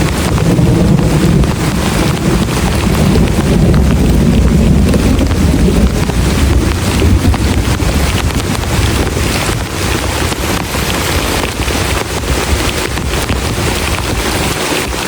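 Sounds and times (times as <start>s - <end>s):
heavy rain drumming on shelter: 0.0s - 15.0s.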